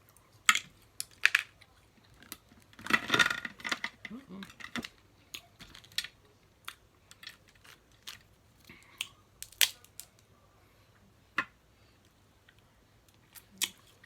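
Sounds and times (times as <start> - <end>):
crab shells cracking: 5.6 - 10.2.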